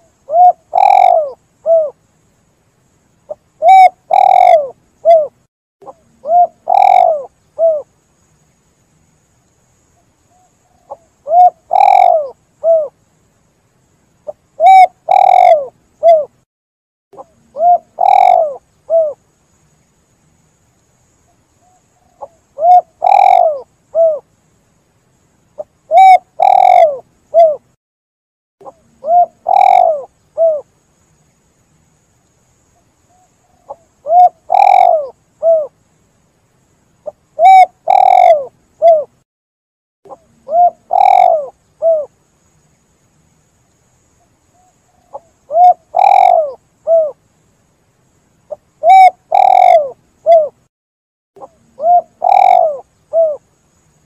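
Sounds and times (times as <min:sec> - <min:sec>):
dove cooing: 0:00.0 - 0:02.0, 0:03.3 - 0:07.9, 0:10.4 - 0:13.0, 0:14.3 - 0:16.4, 0:17.2 - 0:19.2, 0:21.6 - 0:24.2, 0:25.6 - 0:27.7, 0:28.6 - 0:30.7, 0:33.1 - 0:35.7, 0:37.4 - 0:39.2, 0:40.1 - 0:42.1, 0:44.6 - 0:47.2, 0:48.8 - 0:50.6, 0:51.4 - 0:53.5.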